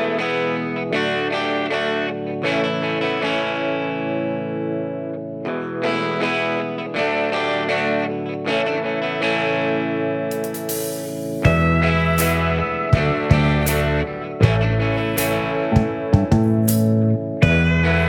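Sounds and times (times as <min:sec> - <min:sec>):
plucked string music: 0:11.3 - 0:18.0.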